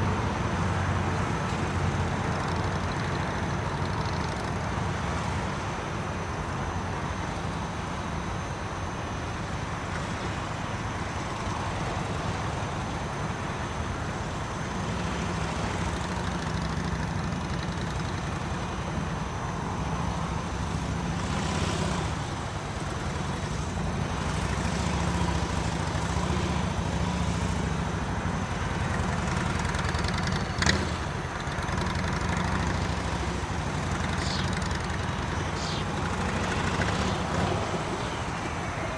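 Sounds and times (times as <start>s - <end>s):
motorcycle engine at low speed: 0.0s - 38.9s.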